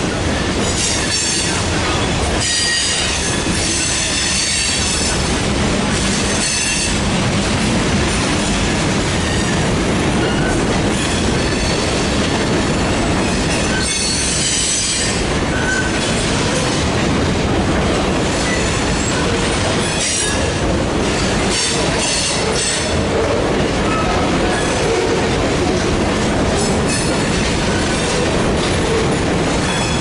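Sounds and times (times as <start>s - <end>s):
freight train rolling past: 0.0s - 30.0s
steel wheels squealing on rail: 0.4s - 5.3s, 5.9s - 7.0s, 9.1s - 16.8s, 18.3s - 25.3s, 26.5s - 30.0s.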